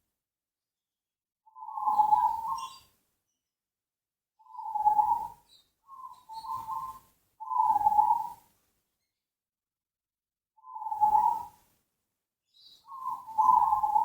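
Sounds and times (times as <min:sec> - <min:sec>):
dove cooing: 0:12.9 - 0:14.0.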